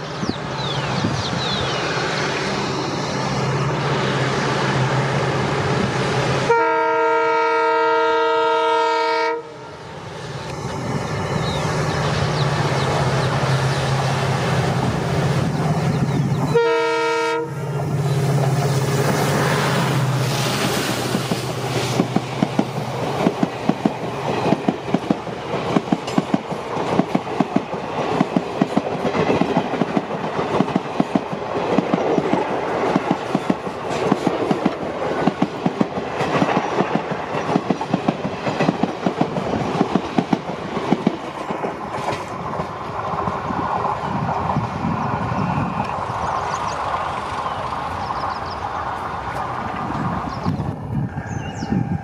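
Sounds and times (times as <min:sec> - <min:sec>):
train wheels clattering over rail joints: 0:20.4 - 0:44.6.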